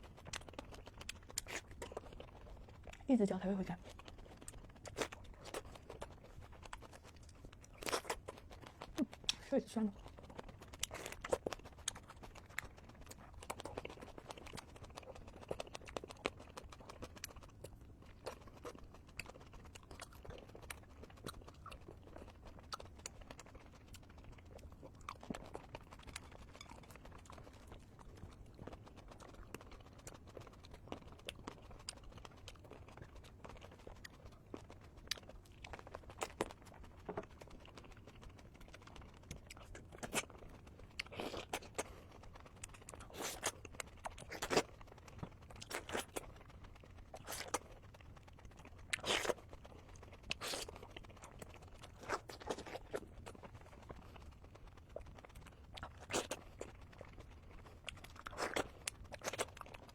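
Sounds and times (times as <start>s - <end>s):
wet chewing and crunching: 0.0s - 59.9s.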